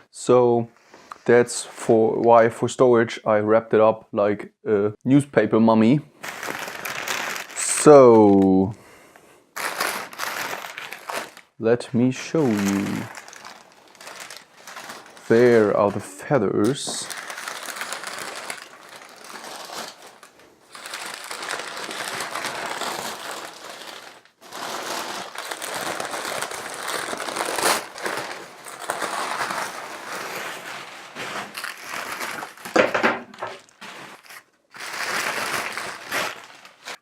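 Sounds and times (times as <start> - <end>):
paper rustling and crumpling: 6.2 - 8.6, 9.6 - 11.5, 12.2 - 16.0, 16.7 - 37.0.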